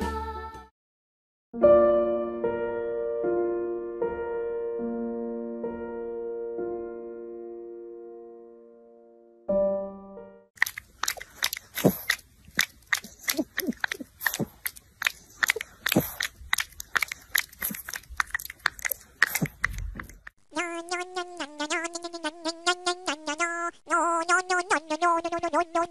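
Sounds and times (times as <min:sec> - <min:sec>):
piano tune: 0:01.6 - 0:10.5
dog licking and smacking: 0:10.6 - 0:20.3.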